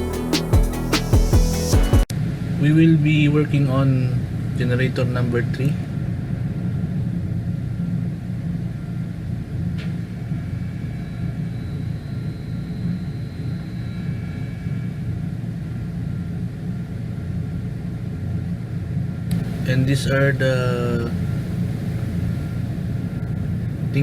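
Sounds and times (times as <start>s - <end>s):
faint high whine: 10.2s - 16.5s, 19.3s - 24.0s
diesel generators rumbling: 19.3s - 24.0s.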